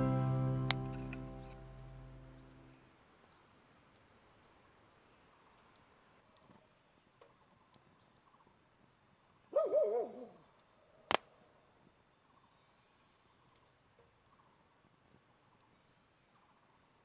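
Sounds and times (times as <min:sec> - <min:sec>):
sharp crack: 0:00.0 - 0:02.7, 0:11.1 - 0:11.4.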